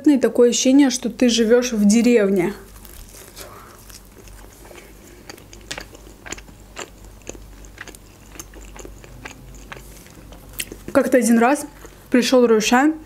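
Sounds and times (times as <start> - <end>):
person chewing food: 2.5 - 12.1.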